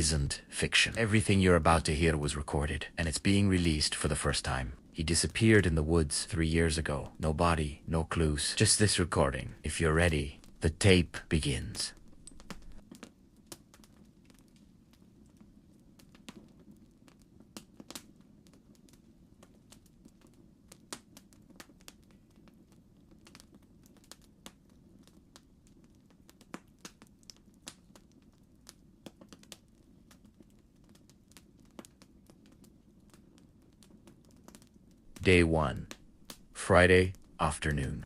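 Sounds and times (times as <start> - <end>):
low steady rumble: 0.0 - 12.8
campfire crackling and popping: 0.0 - 38.0.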